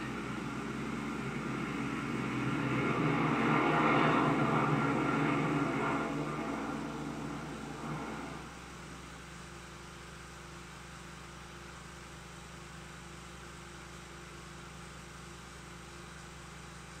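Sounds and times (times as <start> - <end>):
steady hiss: 0.0 - 9.2
low electrical hum: 0.0 - 17.0.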